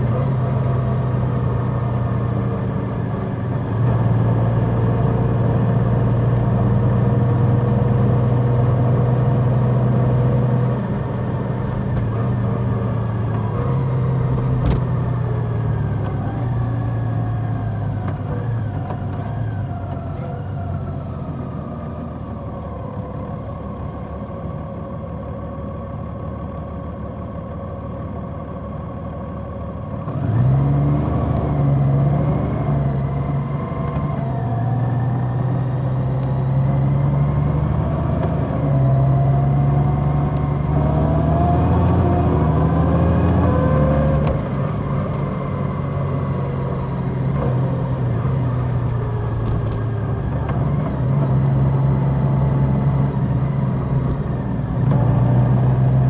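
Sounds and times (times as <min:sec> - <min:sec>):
motorcycle engine running: 0:43.4 - 0:56.0.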